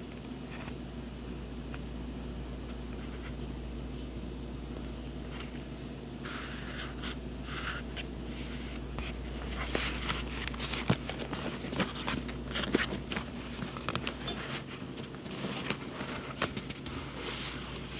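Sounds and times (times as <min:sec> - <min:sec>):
paper rustling: 0:06.3 - 0:17.9.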